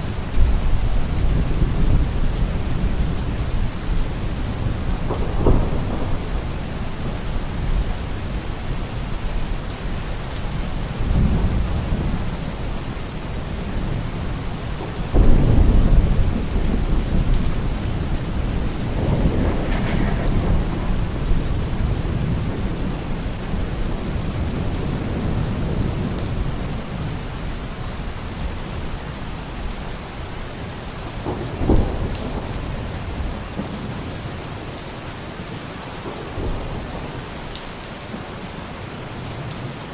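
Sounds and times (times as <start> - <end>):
heavy rain: 0.0 - 39.9
thunder rolling: 4.6 - 7.2, 14.8 - 26.7, 31.2 - 33.9.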